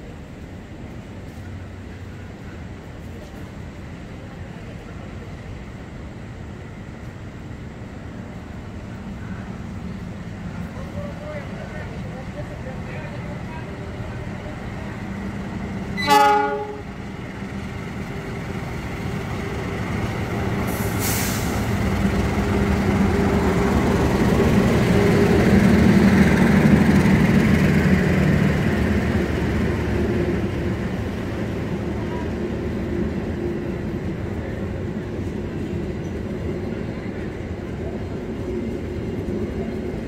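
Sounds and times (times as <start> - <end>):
train wheels rumbling on rail: 0.0 - 40.0
train horn blast: 16.0 - 17.0
short hiss: 20.7 - 21.7.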